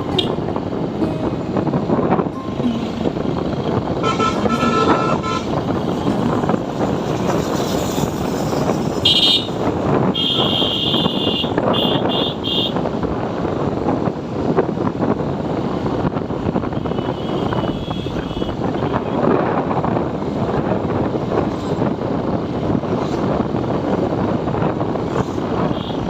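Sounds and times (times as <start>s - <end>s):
road and wind noise: 0.0s - 26.0s
vehicle horns honking: 4.0s - 6.0s, 9.0s - 12.8s, 16.7s - 19.1s, 25.6s - 26.0s.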